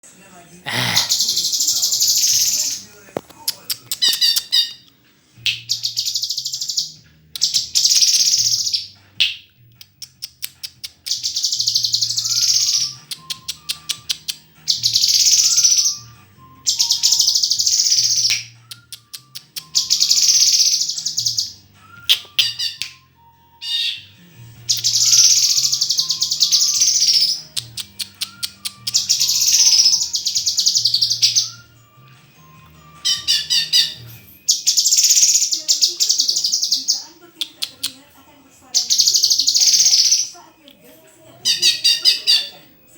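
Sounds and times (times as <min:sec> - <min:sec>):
songbird singing buzzy phrases: 0:00.6 - 0:42.9
bird clicking notes: 0:02.3 - 0:06.6, 0:07.3 - 0:15.9, 0:16.7 - 0:23.0, 0:24.7 - 0:31.6, 0:32.6 - 0:38.0.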